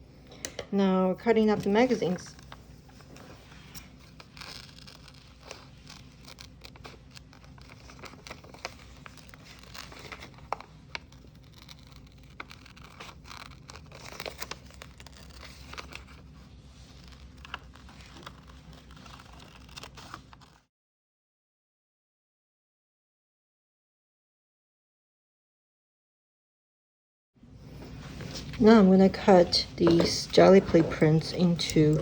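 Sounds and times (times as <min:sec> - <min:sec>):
paper rustling and crinkling: 0:01.4 - 0:20.6, 0:27.6 - 0:32.0
scissors snipping paper: 0:03.5 - 0:20.6, 0:29.1 - 0:32.0.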